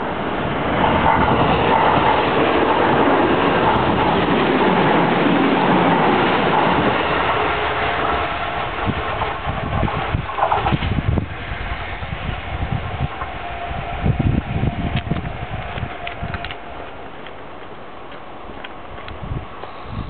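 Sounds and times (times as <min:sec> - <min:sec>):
train wheels rushing on rails: 0:00.0 - 0:20.0
clacks over rail joints: 0:00.8 - 0:11.1, 0:14.9 - 0:19.2.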